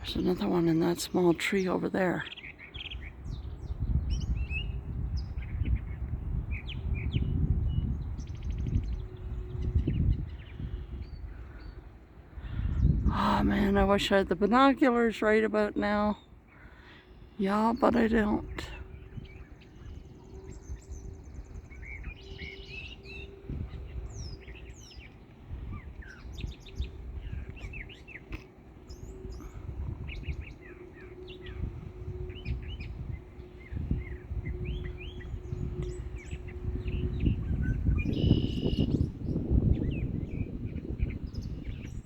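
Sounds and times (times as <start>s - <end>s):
songbirds singing: 0.0s - 42.0s
buzzy bird note: 17.1s - 42.0s
low rumble: 17.9s - 42.0s.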